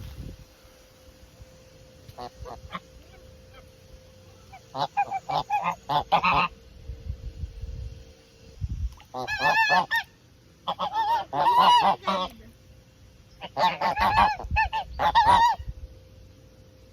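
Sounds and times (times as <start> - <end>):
geese honking: 2.1 - 6.6, 9.1 - 12.5, 13.4 - 15.7.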